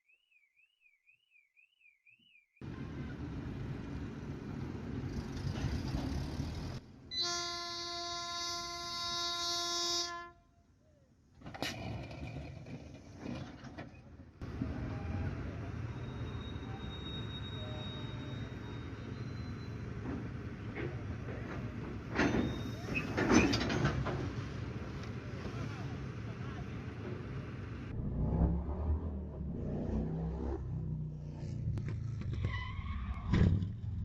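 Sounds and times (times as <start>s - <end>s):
car road noise: 2.6s - 7.1s, 11.5s - 19.2s, 22.8s - 34.0s.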